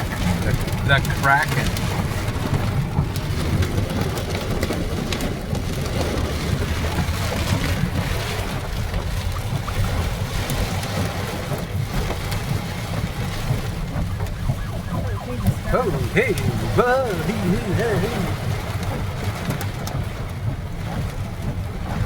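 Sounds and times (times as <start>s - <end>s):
heavy rain pouring: 0.0s - 22.0s
low rumble: 12.9s - 15.7s.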